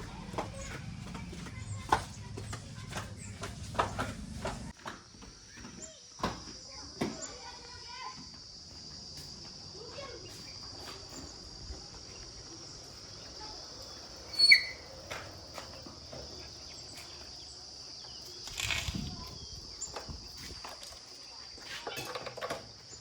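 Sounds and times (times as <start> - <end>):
insects droning: 0.0 - 23.0
sharp high squeak: 14.3 - 14.9.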